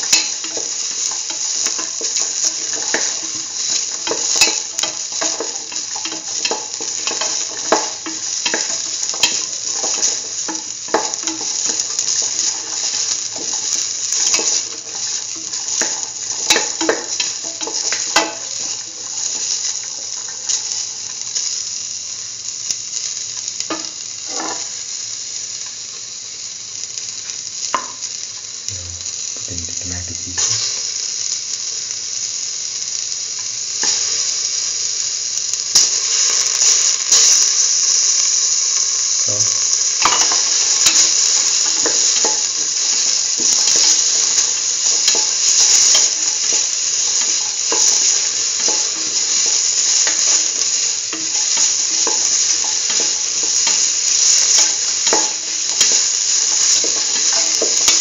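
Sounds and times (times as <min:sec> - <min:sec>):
spoon scraping and knocking pan: 0:00.0 - 0:19.2
food sizzling in hot oil: 0:00.0 - 0:58.0.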